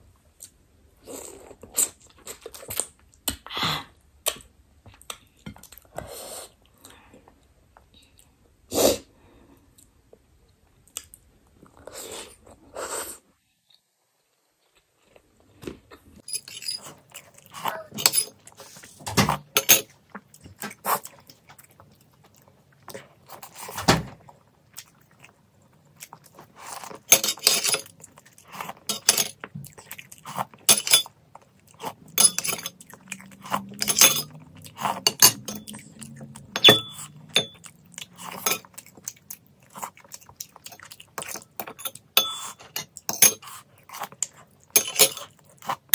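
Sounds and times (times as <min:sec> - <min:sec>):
chewing and eating: 0:00.3 - 0:03.4, 0:13.7 - 0:45.9
tableware clinking: 0:16.2 - 0:16.9, 0:18.0 - 0:18.4, 0:19.2 - 0:19.9, 0:27.1 - 0:27.9, 0:28.9 - 0:29.4, 0:30.7 - 0:31.1, 0:32.1 - 0:32.9, 0:33.7 - 0:34.4, 0:35.0 - 0:35.8, 0:36.5 - 0:38.8, 0:41.2 - 0:43.4, 0:44.8 - 0:45.3.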